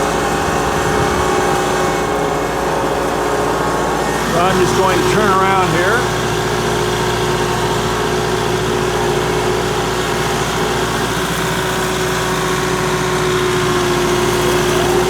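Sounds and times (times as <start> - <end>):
steady whine: 0.0 - 7.7
tractor diesel engine running: 0.0 - 15.0.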